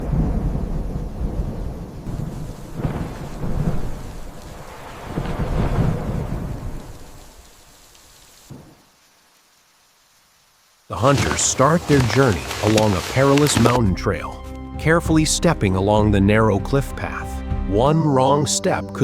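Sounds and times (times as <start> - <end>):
rolling thunder: 0.0 - 7.3
steady rain: 0.0 - 14.4.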